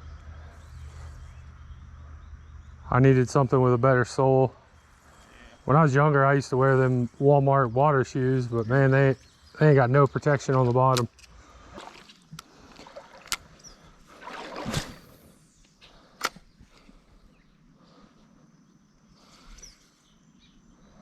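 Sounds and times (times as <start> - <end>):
water sloshing in a creek: 4.7 - 17.2
whooshing splash: 14.1 - 15.2.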